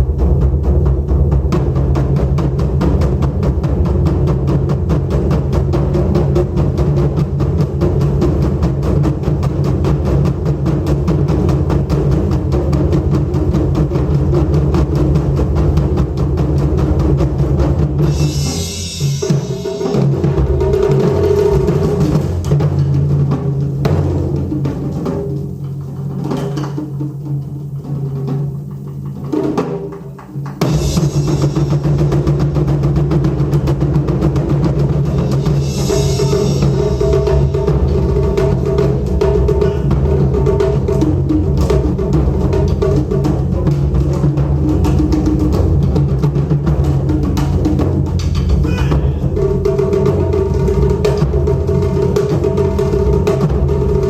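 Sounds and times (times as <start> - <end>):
taiko drums played fast: 0.0 - 54.0
bright hissing high sound: 35.6 - 37.0.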